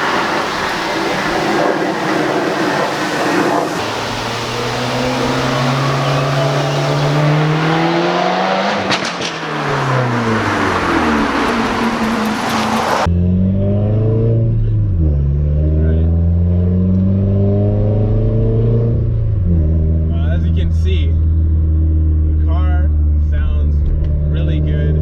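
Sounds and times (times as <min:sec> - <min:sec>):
loud rushing hiss: 0:00.0 - 0:07.6
car engine accelerating: 0:00.0 - 0:25.0.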